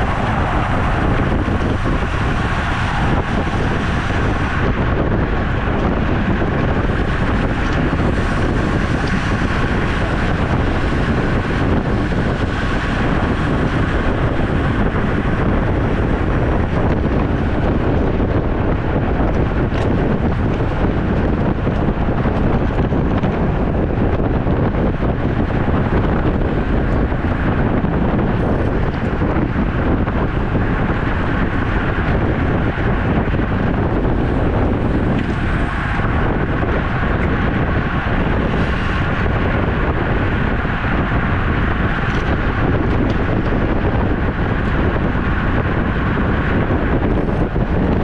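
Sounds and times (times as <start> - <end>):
wind rushing on microphone: 0.0 - 48.0.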